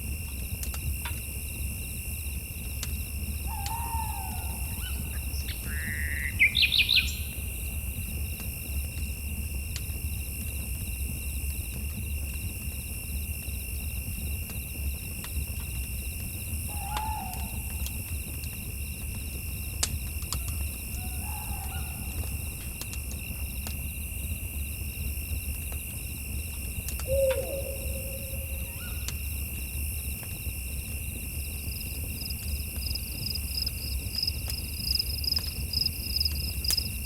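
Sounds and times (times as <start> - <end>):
owl hooting: 3.5 - 7.1, 16.7 - 18.1, 20.4 - 22.5, 27.0 - 29.1.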